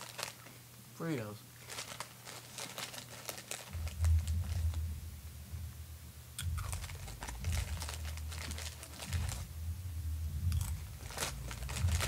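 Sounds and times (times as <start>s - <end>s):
corn chips crunching: 0.0s - 0.6s, 1.6s - 4.8s, 6.4s - 9.5s, 10.5s - 12.0s
low rumble: 3.7s - 12.0s.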